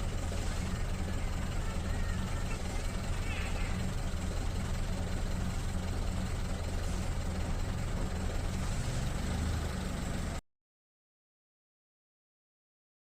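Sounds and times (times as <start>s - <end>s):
low mechanical hum: 0.0s - 10.4s.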